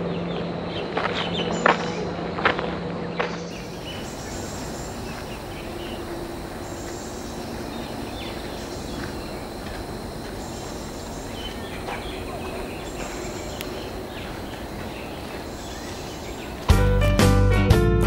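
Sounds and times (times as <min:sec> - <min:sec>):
outdoor background noise: 0:00.0 - 0:17.4
faint bird chirps: 0:03.6 - 0:16.8.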